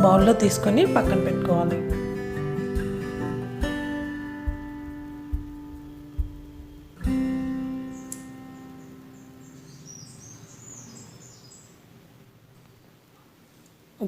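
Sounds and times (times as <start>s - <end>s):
acoustic guitar strum: 0.0s - 9.8s.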